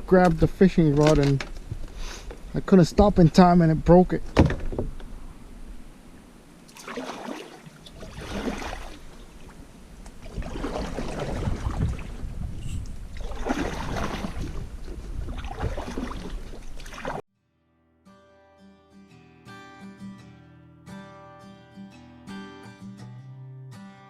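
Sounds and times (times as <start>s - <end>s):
paddle strokes splashing: 6.7s - 17.2s
wind rumble on microphone: 8.0s - 16.8s.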